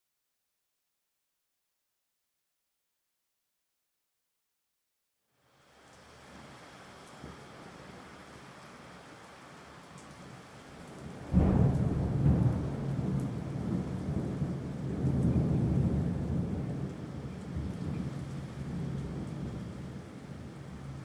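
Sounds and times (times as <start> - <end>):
steady rain: 5.4 - 21.0
thunder rumbling: 11.1 - 21.0.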